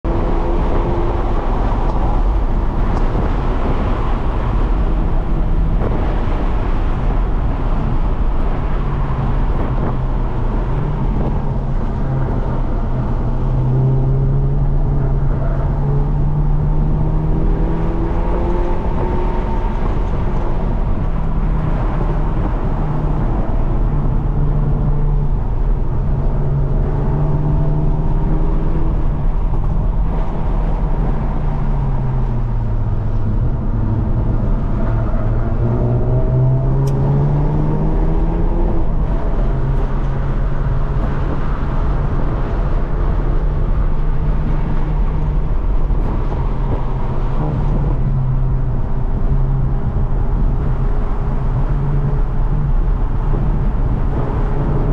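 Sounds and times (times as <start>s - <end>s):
car engine accelerating: 0.0s - 54.9s
road and wind noise: 0.0s - 54.9s.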